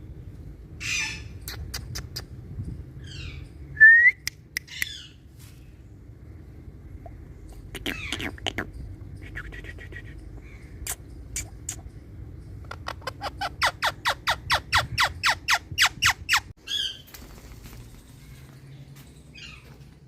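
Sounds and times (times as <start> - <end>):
parrot screeching calls: 0.8 - 1.3, 13.1 - 17.0.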